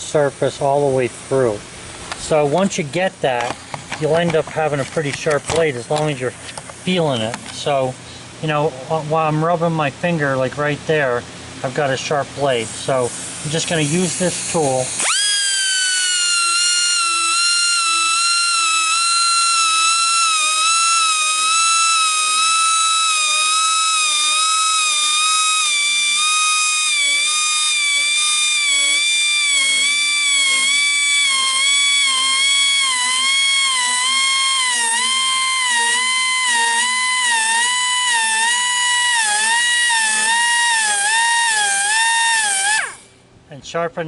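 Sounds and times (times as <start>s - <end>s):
air grinder whining on steel: 13.0s - 43.1s.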